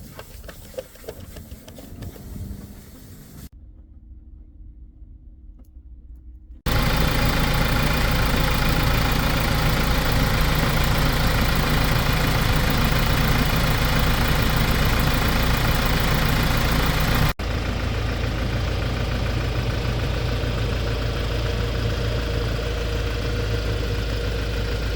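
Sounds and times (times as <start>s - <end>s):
diesel engine idling: 6.7s - 24.9s.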